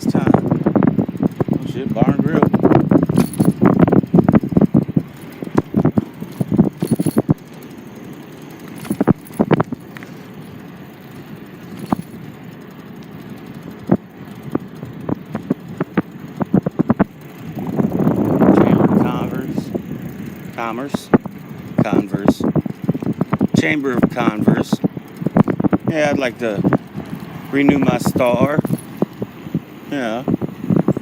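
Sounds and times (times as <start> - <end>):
vehicle rattling on bumpy road: 0.0 - 31.0.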